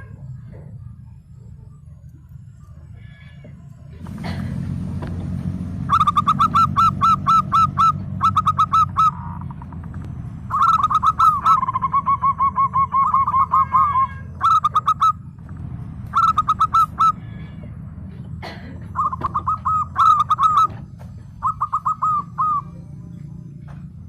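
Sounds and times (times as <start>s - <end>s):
dove cooing: 2.8s - 24.0s.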